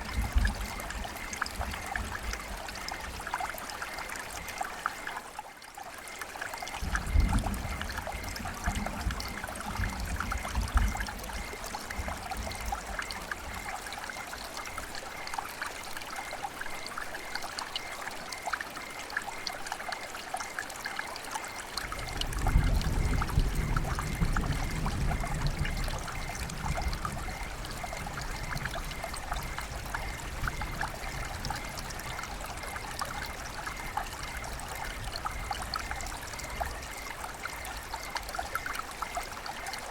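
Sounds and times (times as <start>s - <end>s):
river water babbling over stones: 0.0s - 39.9s.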